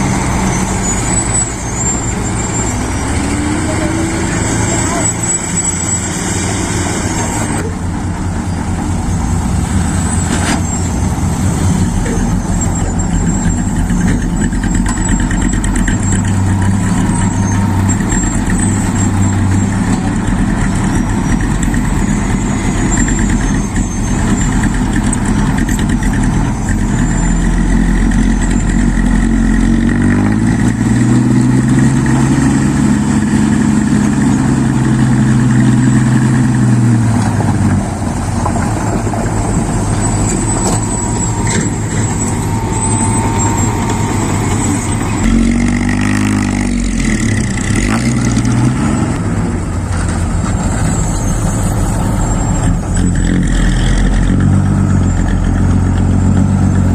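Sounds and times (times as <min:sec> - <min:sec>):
dump truck diesel engine revving: 0:00.0 - 0:56.9.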